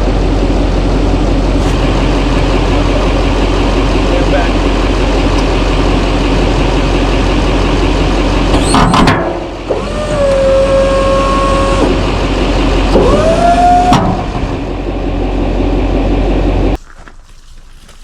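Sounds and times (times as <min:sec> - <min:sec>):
diesel engine running: 0:00.0 - 0:16.8
electric motor whine: 0:09.7 - 0:16.8.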